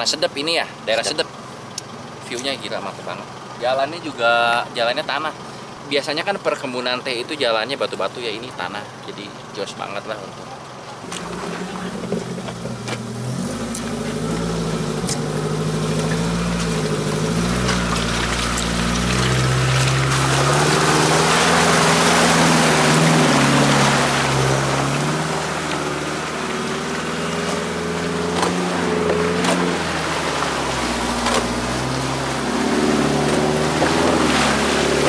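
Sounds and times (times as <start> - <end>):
car engine running: 0.0 - 35.0
sharp knocks: 28.3 - 29.8.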